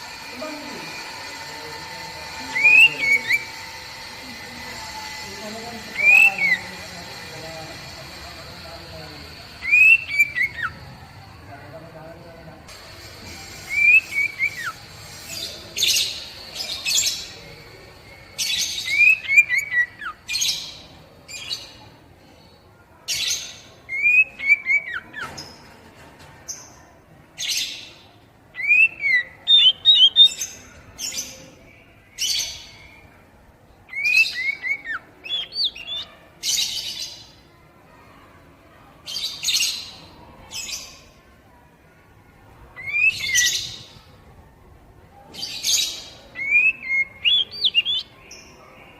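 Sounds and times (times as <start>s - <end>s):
bird singing rasps and whistles: 0.1s - 4.1s, 5.2s - 10.8s, 13.4s - 17.4s, 18.2s - 21.7s, 23.2s - 25.3s, 28.6s - 30.6s, 33.9s - 37.2s, 42.8s - 44.0s, 45.4s - 48.5s.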